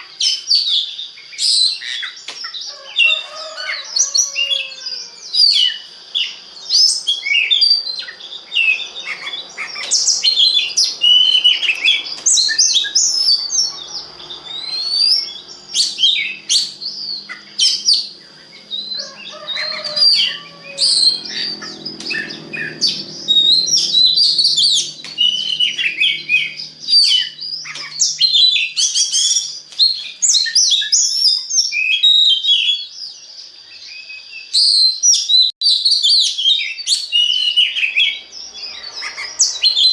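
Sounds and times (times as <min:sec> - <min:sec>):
bird singing varied song: 0:00.0 - 0:39.9
steady high tone: 0:07.2 - 0:27.6.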